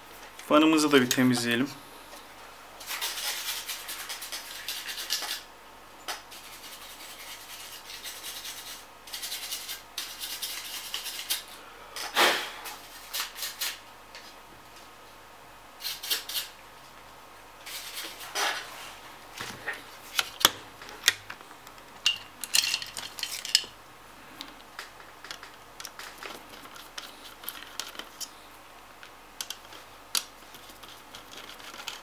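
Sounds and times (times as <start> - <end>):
brush scrubbing fan: 6.3 - 11.6, 26.0 - 28.6, 29.5 - 32.0.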